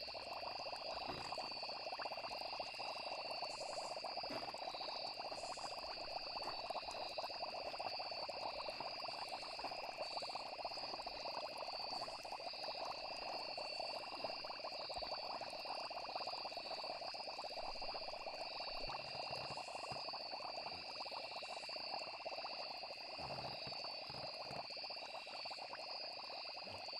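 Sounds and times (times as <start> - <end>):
frogs calling: 0.0 - 15.6
crickets trilling: 0.0 - 26.9.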